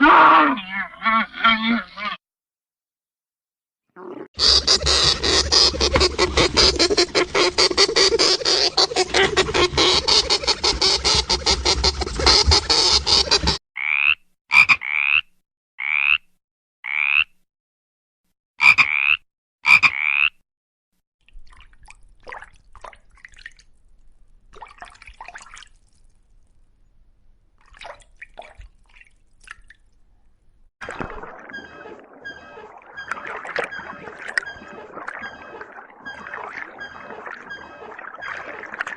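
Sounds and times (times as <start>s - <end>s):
frogs croaking: 30.9s - 38.9s.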